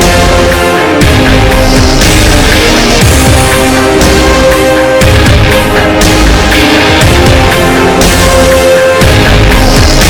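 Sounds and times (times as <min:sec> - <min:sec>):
hard-driving music with heavy bass: 0:00.0 - 0:10.0.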